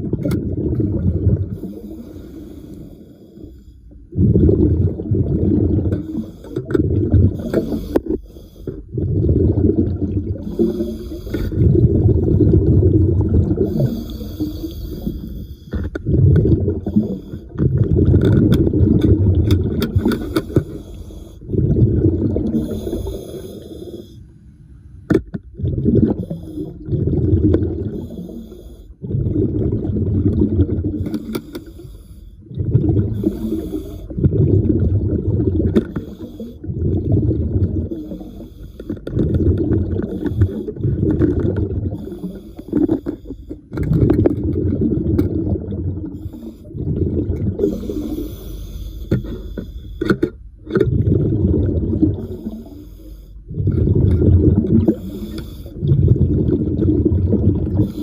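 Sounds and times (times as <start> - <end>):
exhaled air bubbling underwater: 0.0 - 58.0
regulator inhale hiss: 1.6 - 4.0, 10.4 - 11.6, 13.6 - 15.9, 20.1 - 21.5, 22.6 - 25.1, 31.1 - 32.4, 33.2 - 34.2, 47.6 - 50.1, 52.3 - 53.4, 54.9 - 55.8.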